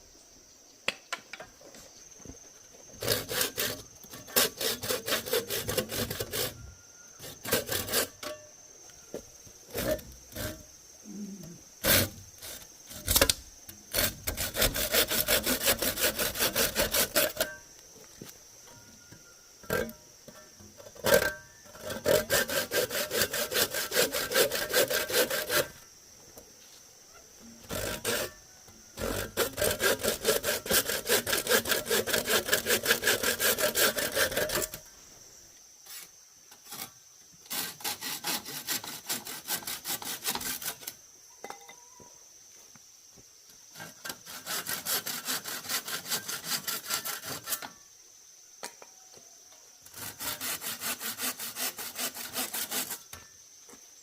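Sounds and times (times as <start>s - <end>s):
hand saw cutting bamboo: 3.0s - 6.6s, 7.2s - 8.4s, 9.7s - 10.6s, 11.8s - 17.6s, 21.0s - 25.8s, 27.7s - 28.4s, 29.0s - 34.8s, 37.5s - 41.0s, 43.8s - 47.8s, 49.9s - 53.1s.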